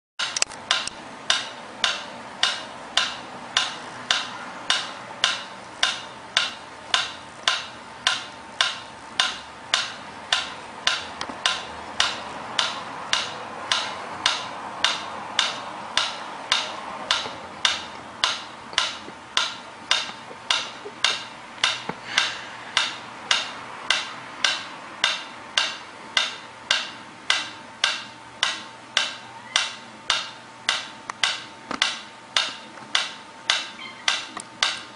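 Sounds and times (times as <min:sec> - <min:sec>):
faint steady hum: 0:00.2 - 0:34.9
regular ticking clicks: 0:00.2 - 0:34.9.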